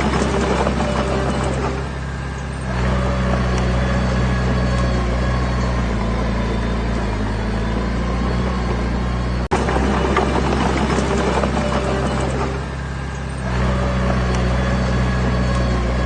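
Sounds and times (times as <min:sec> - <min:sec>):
heavy diesel engine rattling: 0:00.0 - 0:16.0.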